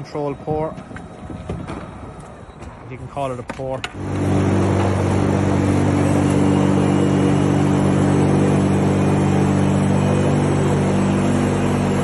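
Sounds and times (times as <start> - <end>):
even machine hum: 0.0 - 12.0
machinery low drone: 4.0 - 12.0.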